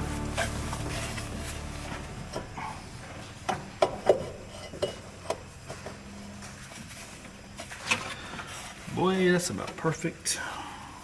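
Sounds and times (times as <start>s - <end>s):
metal pipe clinks and knocks: 3.5s - 5.4s.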